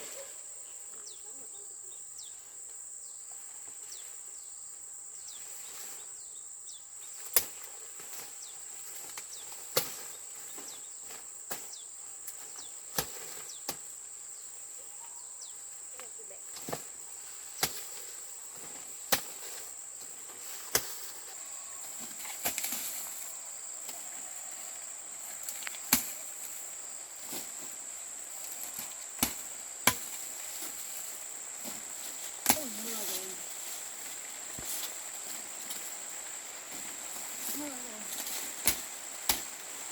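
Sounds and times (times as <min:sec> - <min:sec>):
insects droning: 0:00.0 - 0:39.9
leaves rustling: 0:00.0 - 0:39.9
corn stalks cracking: 0:07.2 - 0:10.7, 0:21.9 - 0:24.2, 0:25.2 - 0:26.6, 0:28.3 - 0:39.9.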